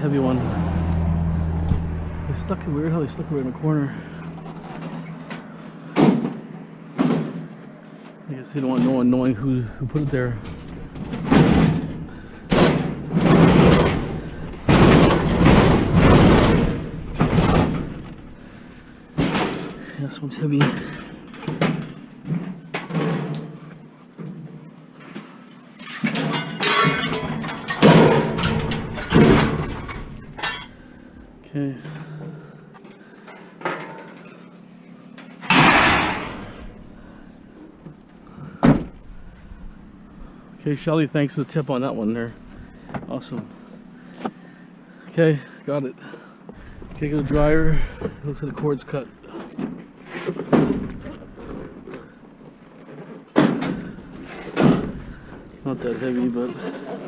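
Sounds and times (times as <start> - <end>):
thumps and metallic bangs: 8.8 - 19.9, 26.2 - 30.8, 35.5 - 37.6.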